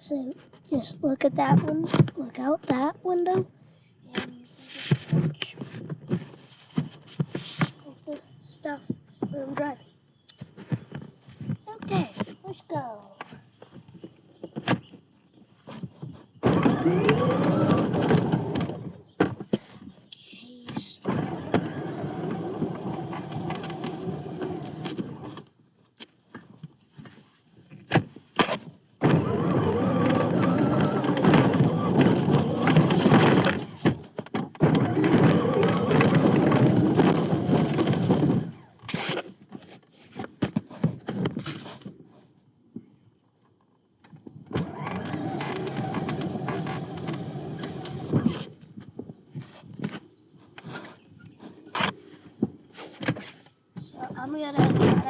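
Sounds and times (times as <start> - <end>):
knocks and clatters: 0.4 - 3.5, 27.9 - 42.0, 51.7 - 55.0
electric motor whirring: 16.4 - 19.0, 29.0 - 33.9, 34.6 - 38.6, 44.6 - 48.3
toy truck rattling over ground: 16.4 - 19.0, 21.1 - 25.4, 29.0 - 39.4, 44.5 - 48.5.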